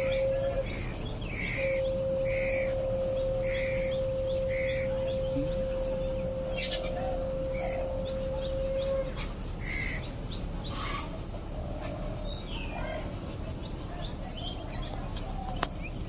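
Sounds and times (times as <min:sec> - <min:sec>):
steady tone: 0:00.0 - 0:09.4
birds chirping and calling: 0:00.0 - 0:16.0
low background noise: 0:00.0 - 0:16.0.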